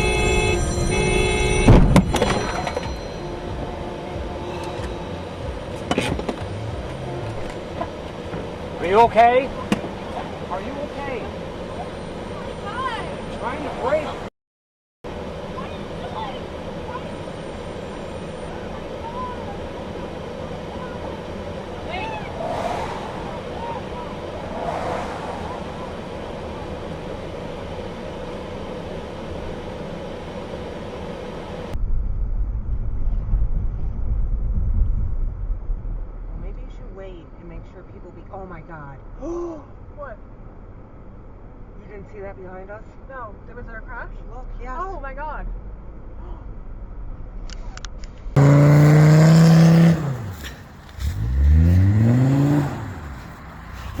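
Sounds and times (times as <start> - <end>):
car road noise hiss: 15.2 - 31.8, 47.5 - 54.0
deep rumble: 22.1 - 27.3, 31.7 - 38.2, 43.3 - 48.8
engine revving hard: 48.4 - 53.4.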